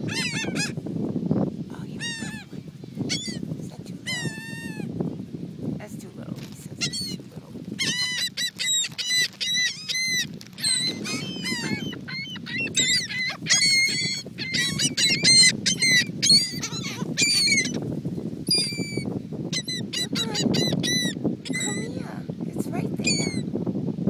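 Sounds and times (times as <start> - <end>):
seagulls calling: 0.0 - 0.8, 2.0 - 3.5, 6.8 - 7.2, 7.8 - 17.9, 18.5 - 21.9, 23.0 - 23.4.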